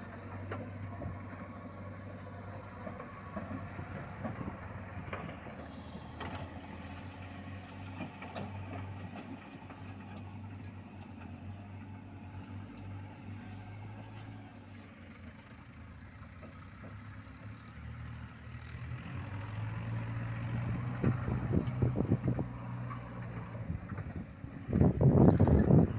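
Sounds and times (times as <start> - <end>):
heavy vehicle engine running: 0.0 - 25.9.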